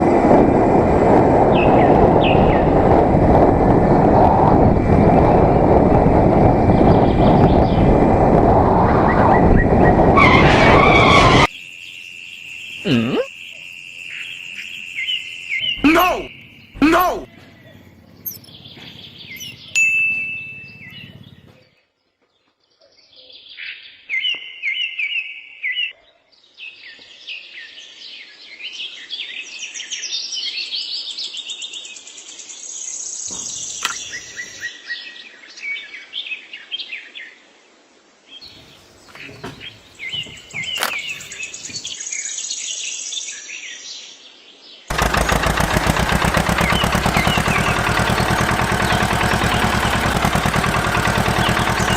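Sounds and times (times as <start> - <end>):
birds chirping and singing: 12.7 - 19.8, 20.4 - 21.8, 38.4 - 43.3, 45.0 - 51.9
rapidly pulsing motor: 44.9 - 51.9.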